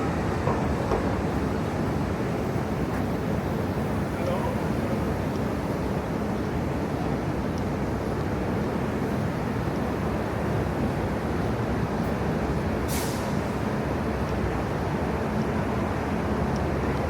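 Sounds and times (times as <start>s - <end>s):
city traffic rumble: 0.0s - 17.0s
short hiss: 12.9s - 13.4s.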